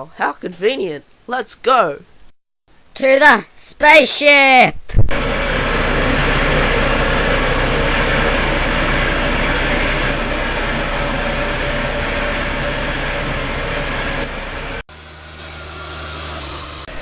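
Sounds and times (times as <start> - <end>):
spaceship engine drone: 5.1 - 17.0.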